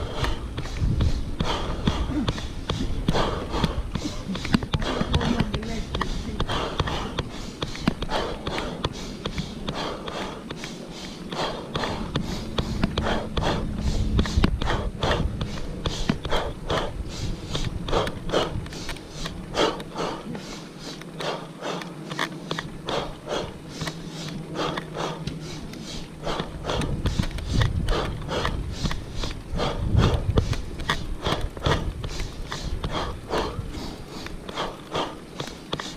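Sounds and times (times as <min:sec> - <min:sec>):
person breathing hard: 0:00.0 - 0:35.9
low rumble: 0:11.3 - 0:20.4, 0:24.4 - 0:34.5.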